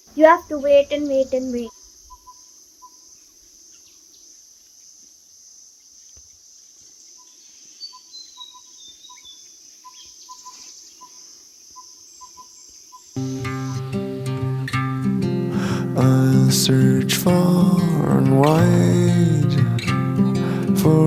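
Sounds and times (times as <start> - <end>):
high-pitched insect drone: 7.0 - 13.8.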